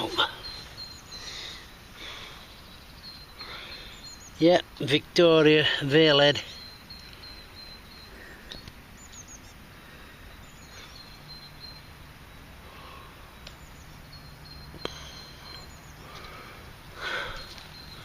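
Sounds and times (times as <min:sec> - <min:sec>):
high bird chirps: 0:00.0 - 0:04.6, 0:06.0 - 0:09.6, 0:10.3 - 0:12.4, 0:13.3 - 0:16.4, 0:17.0 - 0:18.0
low background rush: 0:00.0 - 0:18.0.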